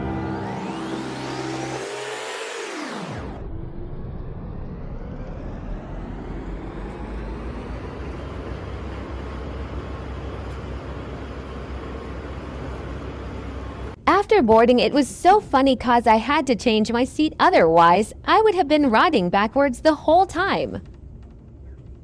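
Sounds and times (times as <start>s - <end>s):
background music: 0.0s - 2.6s
sweeping edit effect: 0.0s - 14.0s
train rumble and hiss: 7.0s - 14.0s.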